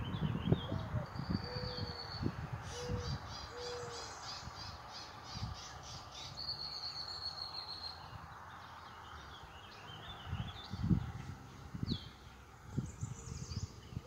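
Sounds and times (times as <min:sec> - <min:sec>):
faint outdoor hiss: 0:00.0 - 0:14.0
bird cooing: 0:00.6 - 0:02.1, 0:02.7 - 0:04.2.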